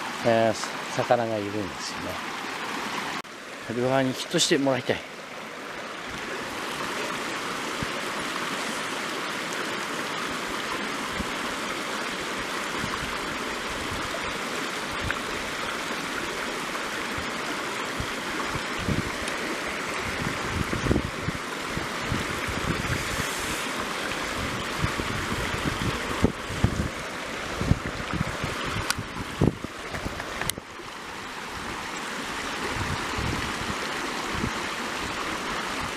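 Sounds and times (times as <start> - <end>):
stream running over rocks: 0.0 - 35.9.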